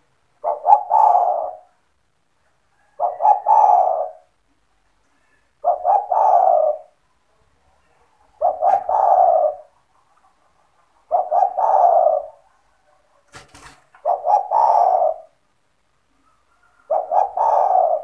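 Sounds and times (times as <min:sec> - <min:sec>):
dove cooing: 0:00.0 - 0:01.9, 0:02.7 - 0:04.5, 0:05.6 - 0:07.0, 0:08.2 - 0:15.5, 0:16.1 - 0:18.0.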